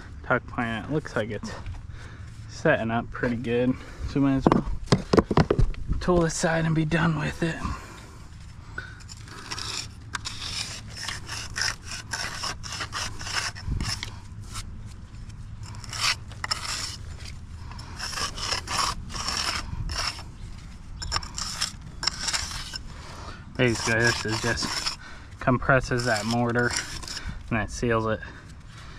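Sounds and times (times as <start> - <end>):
steel jointer scraping mortar joints: 9.1 - 14.1, 15.6 - 20.3, 21.0 - 28.1.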